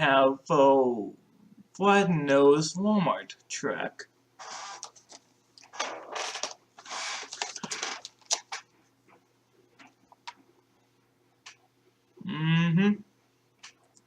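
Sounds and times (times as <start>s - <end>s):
rustling of packaging: 4.4s - 8.7s.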